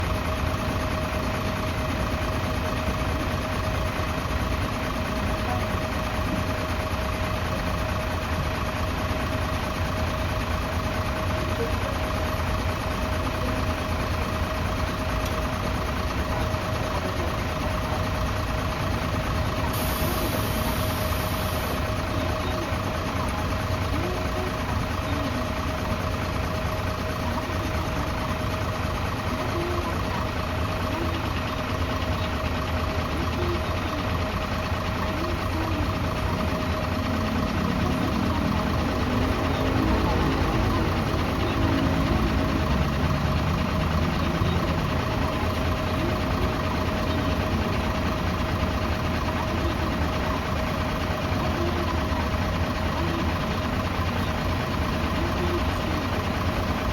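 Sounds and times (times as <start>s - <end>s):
bus diesel engine idling: 0.0s - 56.9s.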